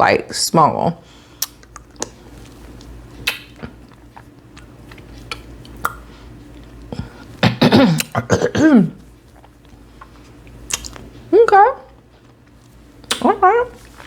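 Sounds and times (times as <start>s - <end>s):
woman coughing: 7.4s - 9.0s.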